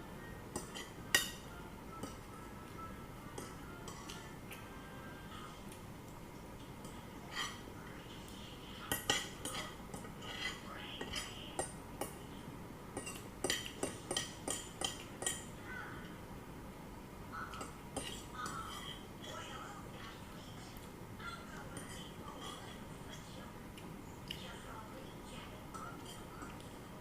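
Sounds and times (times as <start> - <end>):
cutlery clinking on a plate: 0.5 - 1.4, 8.9 - 12.2, 13.0 - 15.5.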